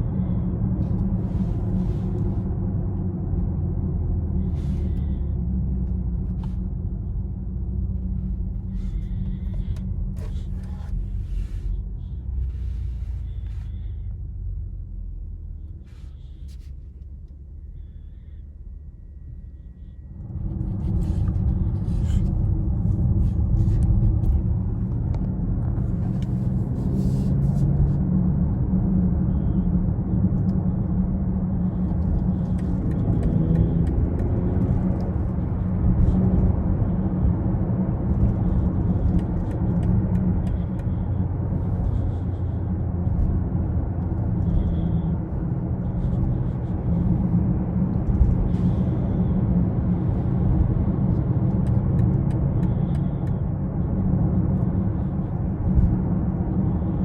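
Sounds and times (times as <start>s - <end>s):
road noise: 0.0s - 57.0s
car engine accelerating: 19.8s - 57.0s.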